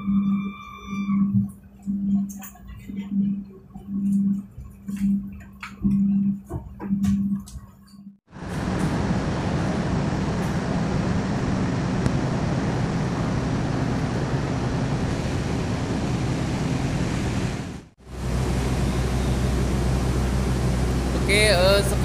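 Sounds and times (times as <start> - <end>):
standing train machinery hum: 8.3 - 22.0.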